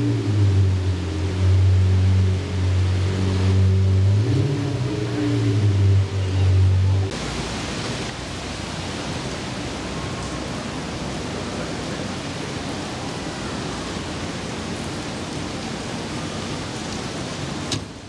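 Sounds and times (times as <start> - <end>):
car engine: 0.0 - 7.5
rain hiss: 0.0 - 18.0.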